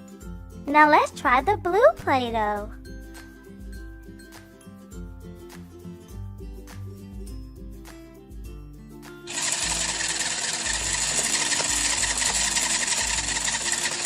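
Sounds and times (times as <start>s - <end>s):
light background music: 0.0s - 14.0s
toy stand mixer whirring: 9.3s - 14.0s.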